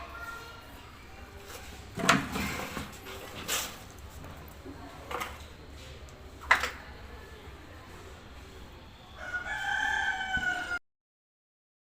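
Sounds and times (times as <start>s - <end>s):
rooster crowing: 9.1s - 10.8s.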